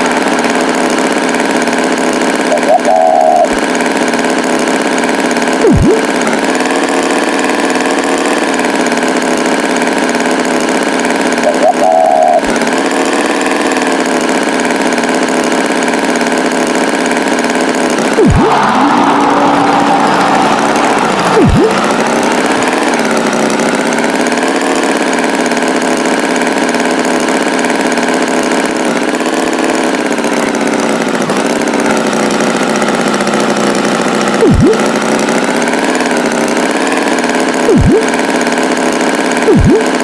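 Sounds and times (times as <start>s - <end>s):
tractor engine running: 0.0s - 40.0s
swooping sound effects: 2.5s - 3.6s, 5.6s - 6.8s, 18.0s - 24.0s, 34.4s - 35.0s, 37.7s - 38.3s, 39.5s - 40.0s.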